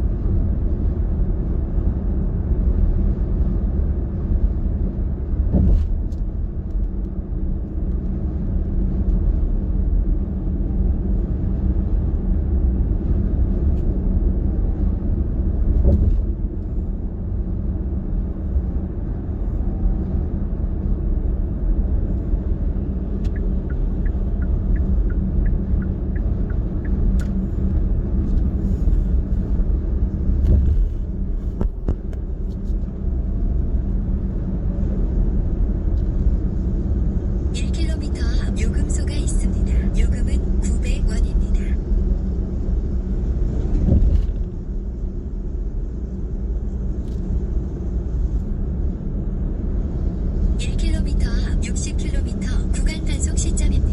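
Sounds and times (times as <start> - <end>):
car driving at road speed: 0.0 - 53.9.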